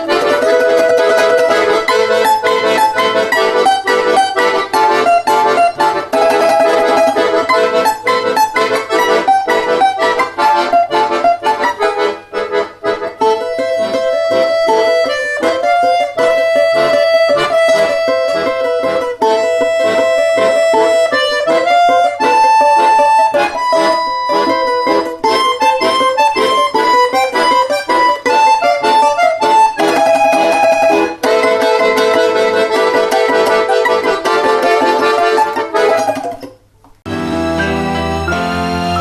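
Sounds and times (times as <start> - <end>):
accordion music: 0.0 - 39.0.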